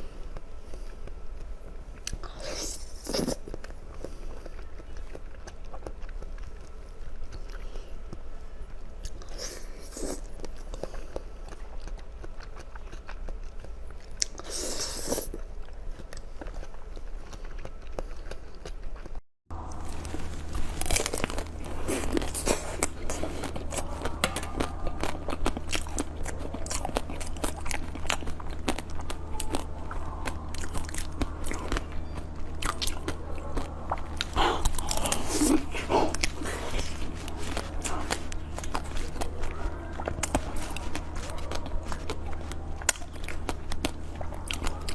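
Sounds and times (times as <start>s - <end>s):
crunchy bites and chewing: 0.0s - 44.9s.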